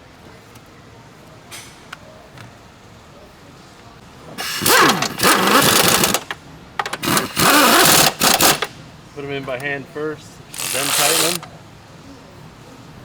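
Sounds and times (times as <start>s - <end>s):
cordless power tool whirring: 4.4s - 8.7s, 10.5s - 11.4s.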